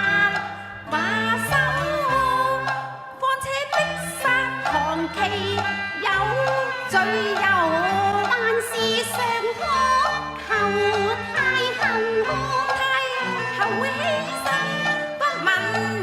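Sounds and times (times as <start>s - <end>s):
instrumental accompaniment: 0.0s - 16.0s
opera singing with sliding pitches: 0.0s - 16.0s.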